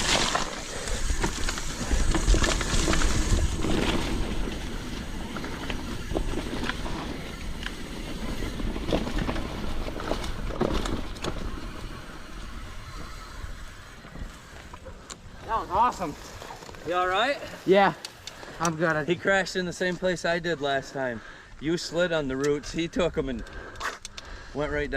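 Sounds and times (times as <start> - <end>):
bike rattling and knocking: 0.0 - 15.0
wind rumbling on microphone: 0.0 - 15.7
tyres on dirt: 0.0 - 24.4.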